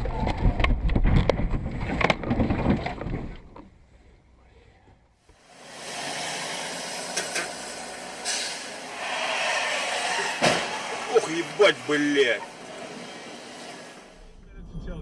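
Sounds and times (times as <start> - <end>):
vehicle road and wind noise: 0.0 - 15.0.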